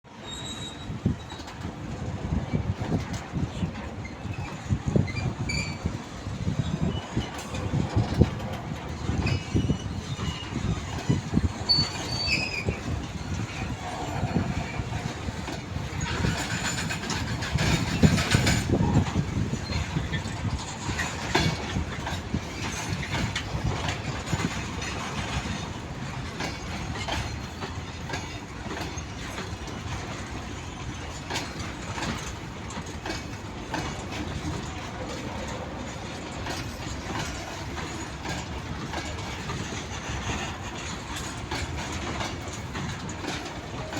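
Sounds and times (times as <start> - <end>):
train rumble: 0.1 - 43.9
train wheels clattering over rail joints: 0.1 - 43.9.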